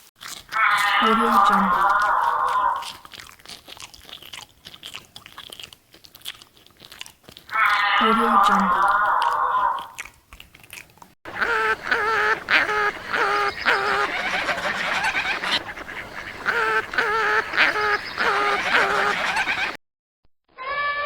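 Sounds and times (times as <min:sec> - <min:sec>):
waterfowl quacking and honking: 0:11.3 - 0:19.8.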